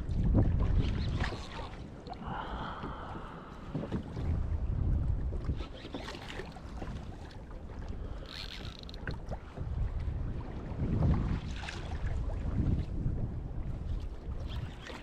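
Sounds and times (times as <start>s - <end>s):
wind gusting on microphone: 0.0s - 5.8s, 9.1s - 14.8s.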